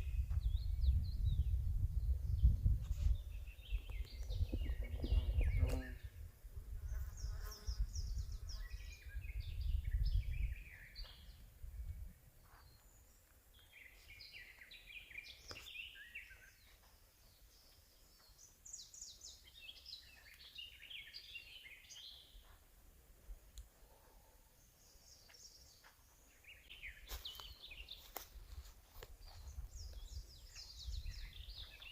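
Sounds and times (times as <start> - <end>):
songbirds singing: 0.0 - 22.7, 23.6 - 31.9.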